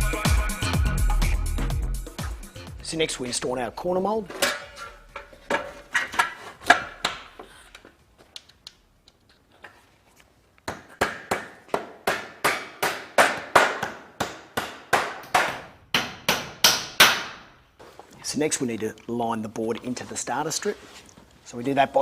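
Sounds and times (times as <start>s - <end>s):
hammer nailing into wood: 10.7s - 17.5s.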